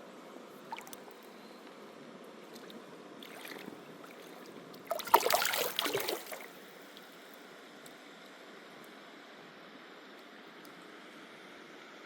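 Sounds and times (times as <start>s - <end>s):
water splashing: 3.2s - 6.6s.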